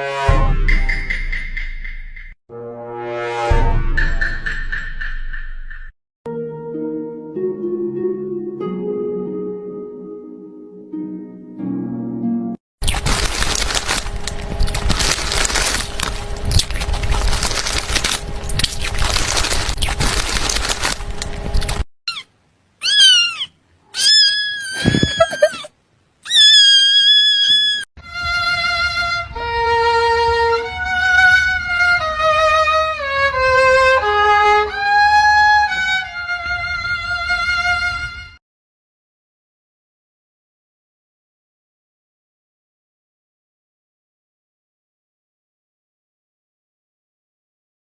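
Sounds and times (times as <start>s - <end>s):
melody of held notes: 6.3s - 12.6s
cat meowing: 22.1s - 27.8s.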